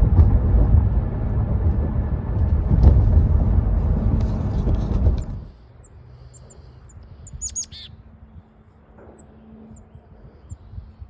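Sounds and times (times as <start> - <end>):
chickadees calling: 6.2 - 8.0.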